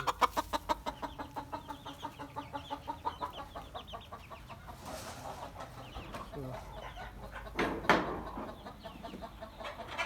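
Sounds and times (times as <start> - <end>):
chickens peeping: 0.0 - 10.0.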